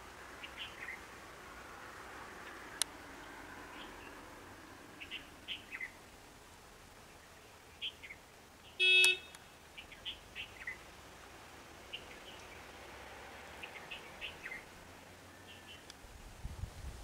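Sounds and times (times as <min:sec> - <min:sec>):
birds chirping: 0:00.0 - 0:01.2, 0:02.4 - 0:04.3, 0:04.9 - 0:06.3, 0:07.0 - 0:10.9, 0:11.7 - 0:16.0.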